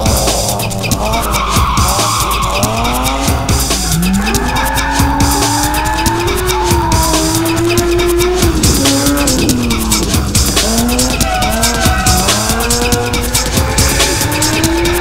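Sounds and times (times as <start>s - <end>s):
car engine revving: 0.0s - 15.0s
tyres squealing: 0.0s - 15.0s.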